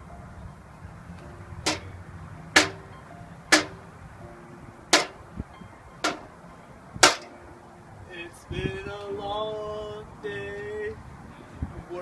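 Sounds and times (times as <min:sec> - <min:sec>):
hammer blows on metal: 0:01.7 - 0:01.9, 0:02.6 - 0:02.9, 0:03.5 - 0:03.8, 0:04.9 - 0:05.2, 0:06.0 - 0:06.3, 0:07.0 - 0:07.4.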